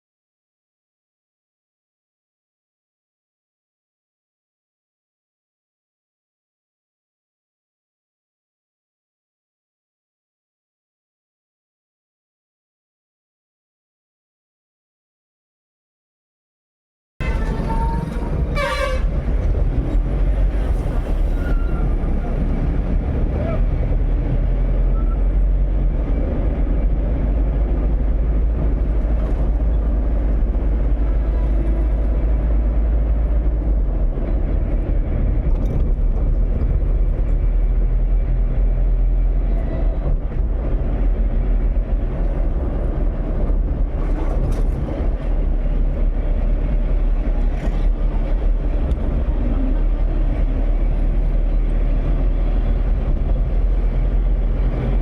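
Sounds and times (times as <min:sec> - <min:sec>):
vehicle rumbling: 0:17.2 - 0:55.0.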